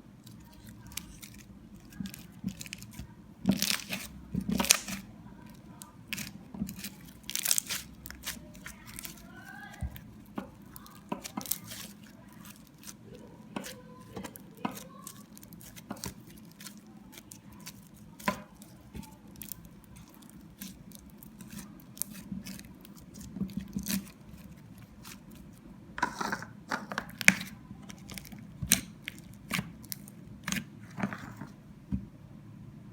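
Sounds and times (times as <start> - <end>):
slime squelching sticky pops: 0.4 - 5.1, 5.8 - 25.5.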